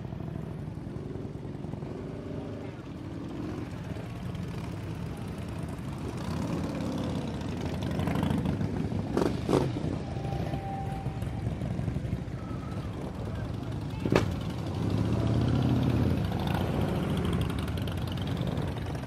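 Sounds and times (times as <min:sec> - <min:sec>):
motorcycle engines rumbling: 0:00.0 - 0:19.0
short steady tone: 0:10.0 - 0:11.8.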